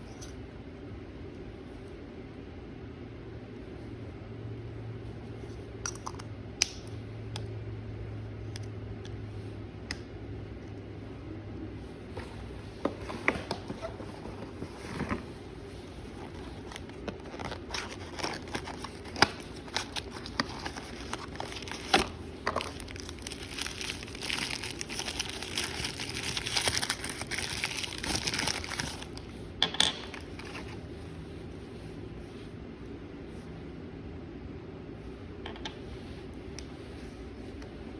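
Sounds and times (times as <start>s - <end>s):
packaging crinkling: 16.1s - 29.3s.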